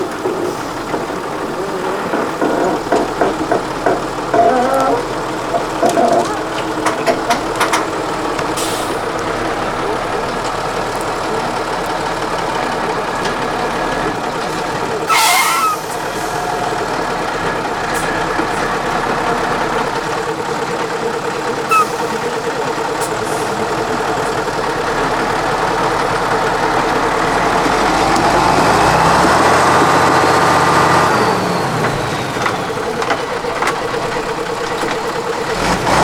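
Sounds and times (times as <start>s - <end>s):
diesel truck engine revving: 0.0s - 36.0s
loud hissing burst: 15.1s - 16.4s.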